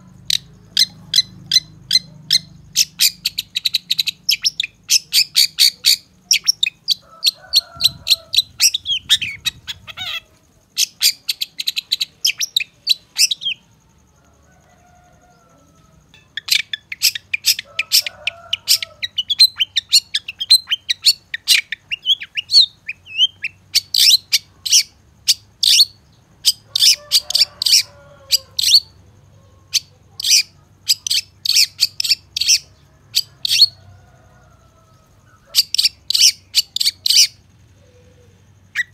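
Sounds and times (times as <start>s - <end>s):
lower bird calls: 0.0s - 38.9s
bird singing high chirps: 7.7s - 13.7s, 16.1s - 29.0s, 35.3s - 38.9s.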